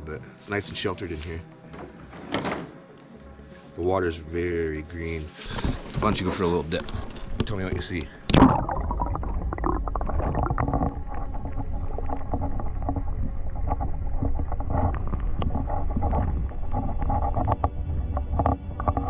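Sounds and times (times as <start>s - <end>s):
low underwater rumble: 5.5s - 19.0s
underwater clicks and knocks: 5.5s - 19.0s.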